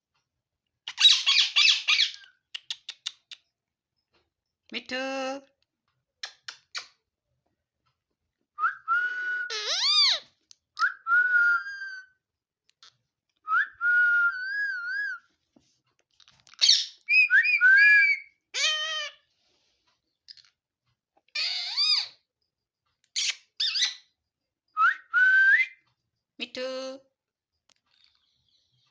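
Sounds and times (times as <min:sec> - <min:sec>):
parrot whistling and chattering: 0:00.9 - 0:03.4, 0:09.2 - 0:12.1, 0:16.6 - 0:19.2, 0:21.3 - 0:22.2, 0:23.1 - 0:24.1.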